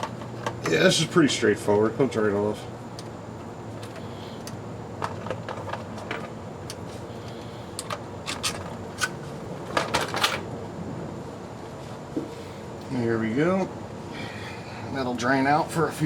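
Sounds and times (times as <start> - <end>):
tools and metal parts clicking: 7.8 - 9.2.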